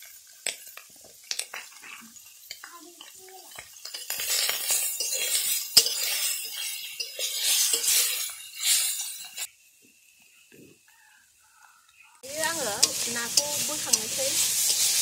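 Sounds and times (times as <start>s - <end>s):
fish sizzling in hot oil: 0.0s - 10.2s, 12.2s - 15.0s
metal spatula scraping wok: 3.4s - 9.5s, 12.2s - 15.0s.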